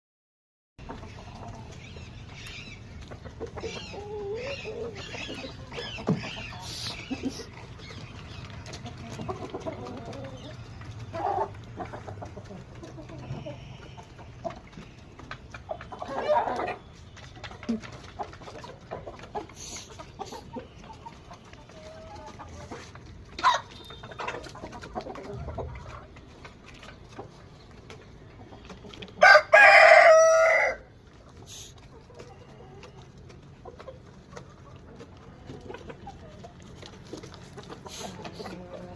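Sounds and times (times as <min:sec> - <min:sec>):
chickens clucking: 0:00.8 - 0:38.9
rooster crowing: 0:29.2 - 0:30.9.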